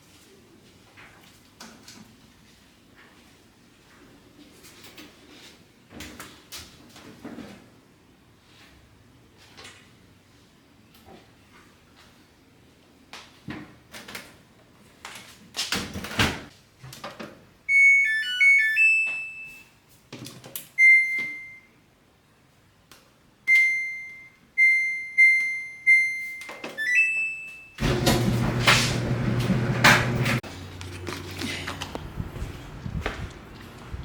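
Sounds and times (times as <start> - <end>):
control panel beeps: 17.7 - 19.6, 20.8 - 21.7, 23.5 - 27.8
rising two-note chime: 17.7 - 19.6
laundry machine being loaded: 27.8 - 30.4
machine humming: 27.8 - 30.9.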